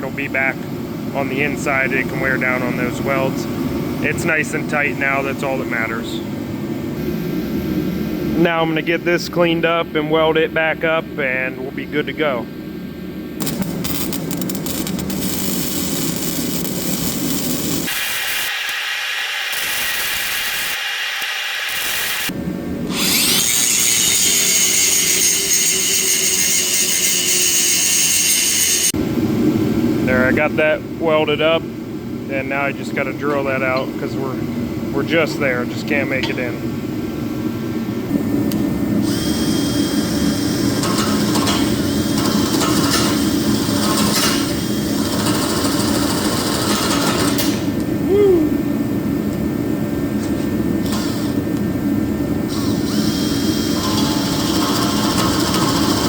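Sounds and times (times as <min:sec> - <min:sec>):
angle grinder grinding metal: 0:13.4 - 0:22.3, 0:22.9 - 0:28.9
electric drill boring into metal: 0:13.4 - 0:22.3, 0:22.9 - 0:28.9, 0:52.5 - 0:56.0
hissing shop noise: 0:13.4 - 0:29.0, 0:39.0 - 0:48.6, 0:50.8 - 0:51.6, 0:52.5 - 0:56.0.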